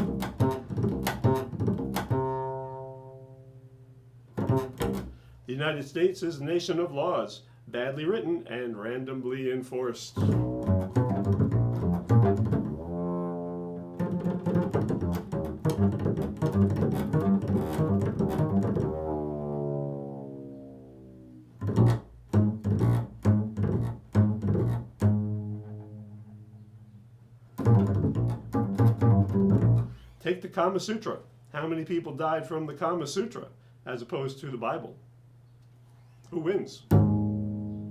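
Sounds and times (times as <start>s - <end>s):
low string instrument bowed and plucked: 0.0s - 3.5s, 4.4s - 5.2s, 10.2s - 27.0s, 27.6s - 30.2s, 36.9s - 37.9s.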